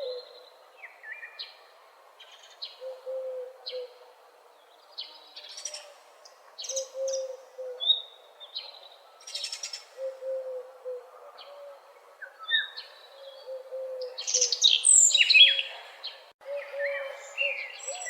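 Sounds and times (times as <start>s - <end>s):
songbirds singing: 0.0s - 18.0s.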